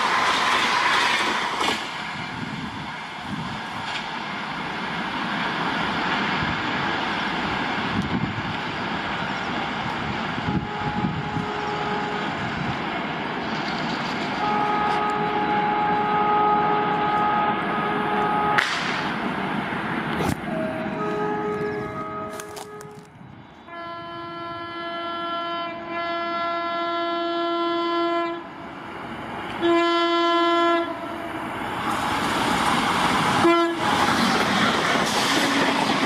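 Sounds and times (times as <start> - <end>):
train wheels rumbling on rails: 0.0 - 23.7, 28.7 - 36.0
locomotive horn: 10.4 - 12.5, 14.4 - 19.1, 20.5 - 28.5, 29.6 - 31.3, 33.4 - 34.0.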